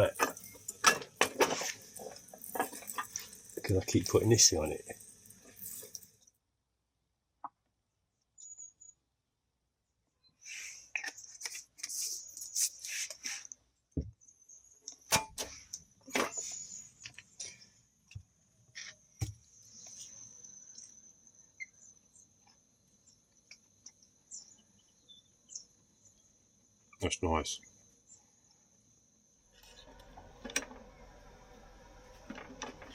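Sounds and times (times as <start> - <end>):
sharp knocks and clatters: 0.1 - 3.7.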